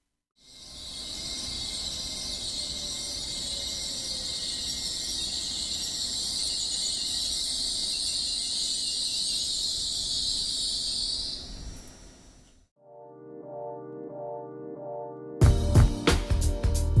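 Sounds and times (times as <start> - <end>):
train high-pitched hiss: 0.4 - 12.4.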